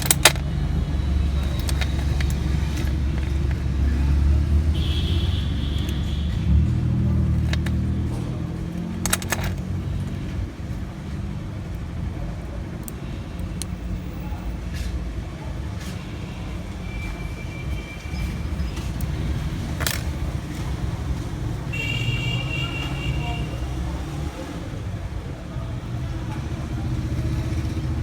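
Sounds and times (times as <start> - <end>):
sharp clicks: 0.0 - 0.6
low engine rumble: 0.0 - 16.3.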